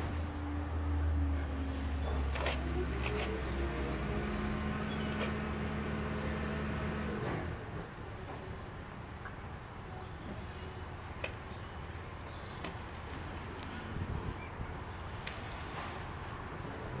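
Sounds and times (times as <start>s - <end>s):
small birds chirping: 3.5s - 5.5s, 8.9s - 17.0s.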